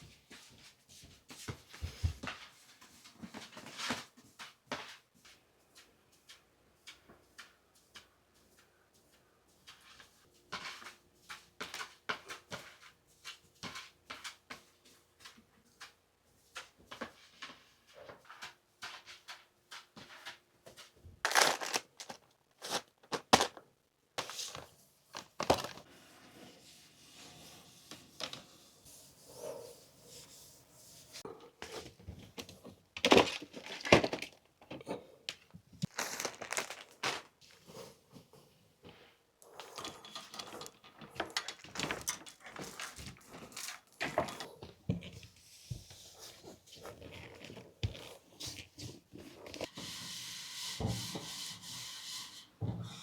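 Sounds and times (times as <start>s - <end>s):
crinkling and rustling: 16.6s - 25.9s, 31.6s - 49.7s.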